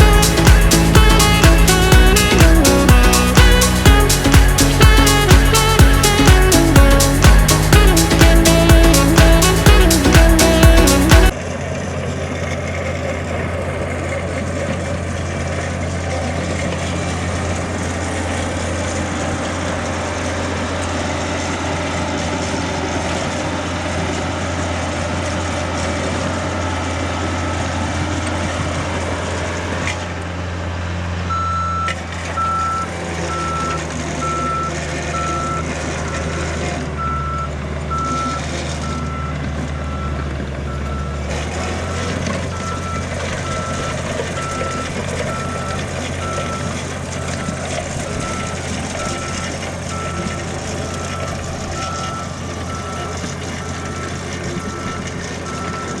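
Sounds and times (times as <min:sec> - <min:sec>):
construction machine engine running: 0:00.0 - 0:56.0
backup alarm beeping: 0:31.3 - 0:35.6, 0:37.0 - 0:40.2, 0:42.5 - 0:56.0.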